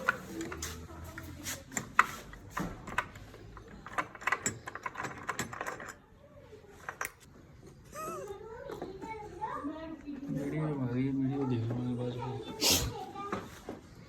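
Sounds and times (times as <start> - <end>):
hand tools clicking and knocking: 0.0 - 6.0.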